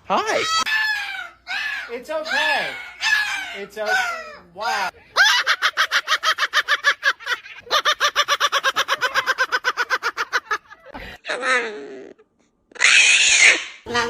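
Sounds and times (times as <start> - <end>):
parrot cackling calls: 0.4 - 4.4.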